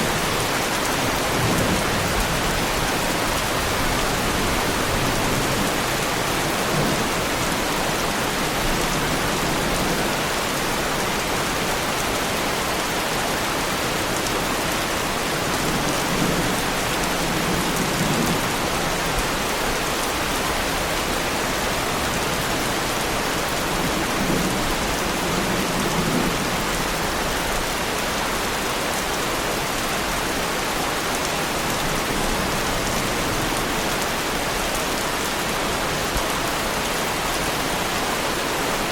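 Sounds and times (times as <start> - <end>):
heavy rain on car bodywork: 0.0 - 38.9.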